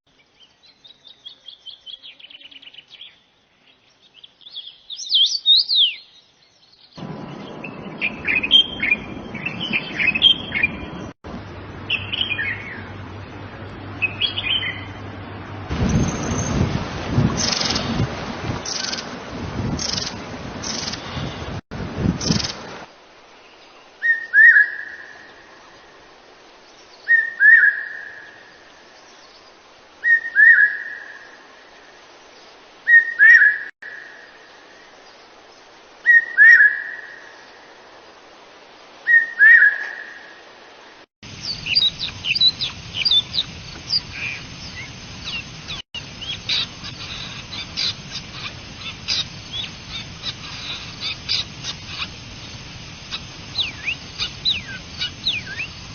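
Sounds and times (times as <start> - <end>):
background hiss: 0.1 - 55.9
bird whistled call: 24.0 - 25.0, 27.1 - 28.2, 30.0 - 31.1, 32.9 - 33.7, 39.1 - 40.2, 41.4 - 48.5, 53.5 - 55.7
quick bird chirps: 41.4 - 52.2, 53.0 - 55.9.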